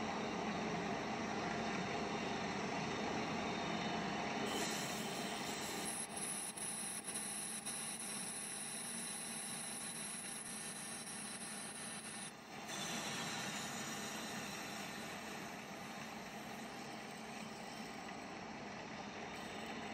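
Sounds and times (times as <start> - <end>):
thin high whine: 4.4 - 15.7.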